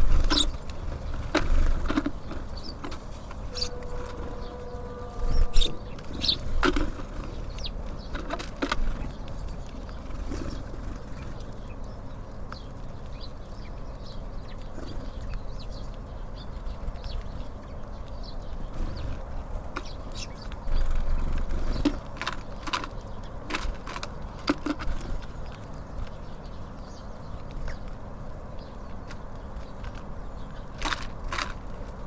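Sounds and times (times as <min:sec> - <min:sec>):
wing flutters and knocks: 0:00.0 - 0:11.5
small birds chirping: 0:00.0 - 0:32.0
low rumble: 0:02.5 - 0:08.0.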